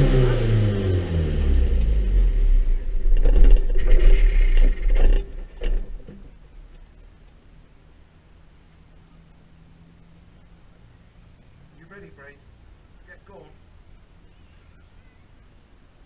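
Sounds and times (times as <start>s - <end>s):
race car engine rumbling: 0.0s - 16.0s
sharp clunks and knocks: 3.0s - 6.8s.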